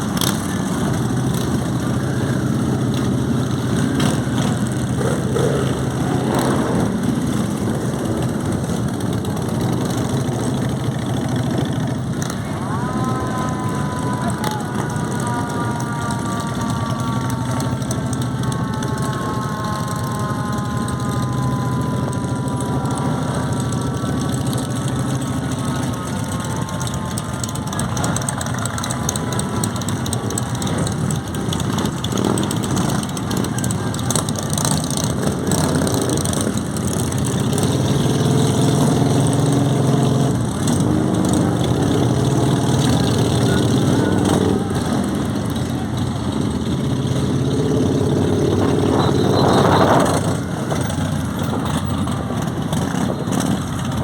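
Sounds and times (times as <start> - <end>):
higher engine note falling: 0.0 - 38.1
motorcycle engines idling: 0.0 - 54.0.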